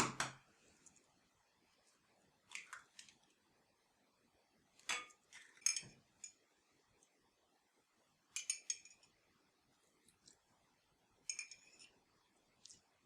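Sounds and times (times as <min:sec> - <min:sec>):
kitchenware clinking and tapping: 0:04.8 - 0:06.4, 0:08.3 - 0:09.2, 0:11.2 - 0:11.9.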